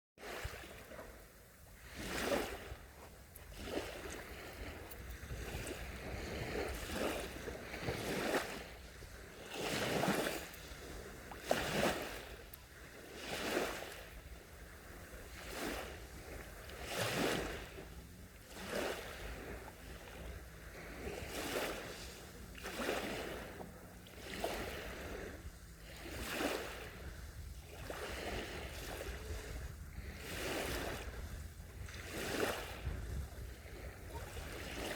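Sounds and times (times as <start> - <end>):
small waves lapping on shore: 0.2 - 34.9
low steady rumble: 14.0 - 34.6.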